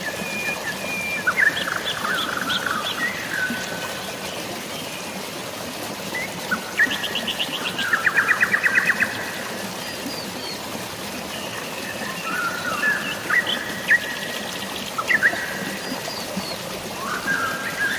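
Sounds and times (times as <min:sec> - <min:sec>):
flowing water: 0:00.0 - 0:17.9.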